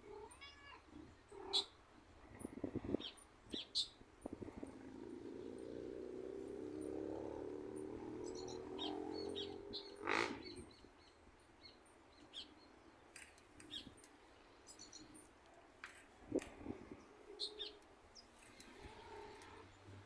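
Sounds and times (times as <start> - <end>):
small birds chirping: 0.1 - 20.0.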